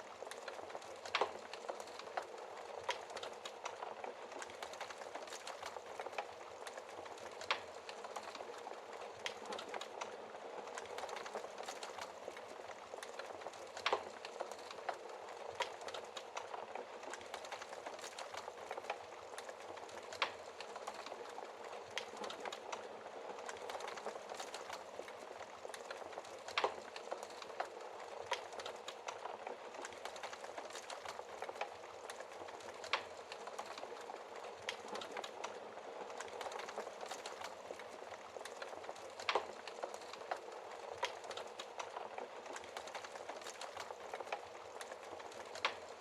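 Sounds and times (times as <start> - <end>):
wood fire crackling and popping: 0.0 - 46.0.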